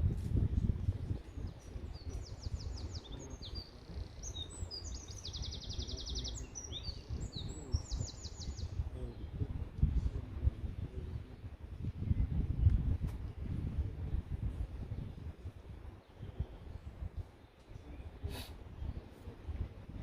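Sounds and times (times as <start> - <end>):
steady low rumbling noise: 0.0 - 20.0
small songbird trilling and chirping: 1.4 - 8.8.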